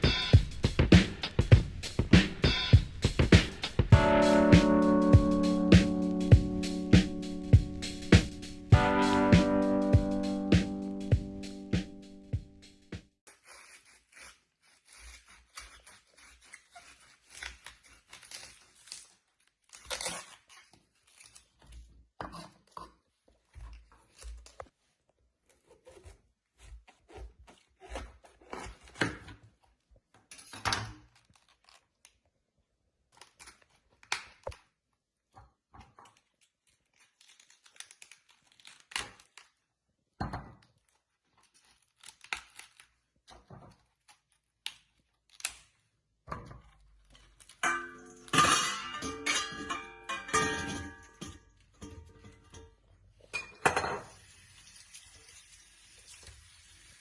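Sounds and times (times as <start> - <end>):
tearing and crinkling: 13.2 - 32.4, 33.0 - 34.8, 36.0 - 39.8, 40.6 - 46.0, 46.7 - 48.4.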